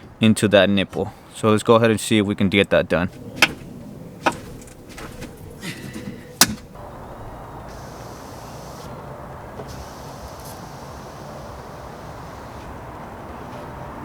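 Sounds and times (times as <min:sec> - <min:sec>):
clicks and knocks of window glass: 0:03.1 - 0:06.8
steady hiss: 0:06.4 - 0:09.0, 0:09.6 - 0:12.9.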